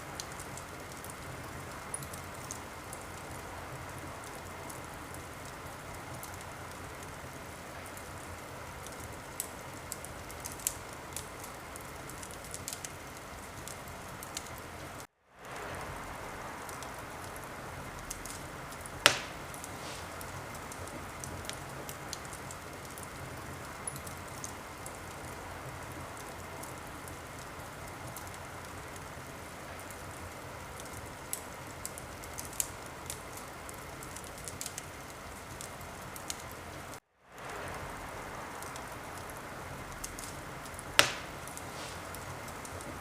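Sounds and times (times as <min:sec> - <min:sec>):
fire hissing: 0:00.0 - 0:43.0
wood fire popping: 0:00.0 - 0:43.0.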